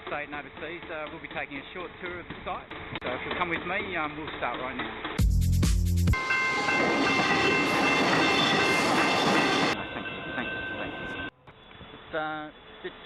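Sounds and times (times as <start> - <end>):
electric train on tracks: 6.2 - 13.0.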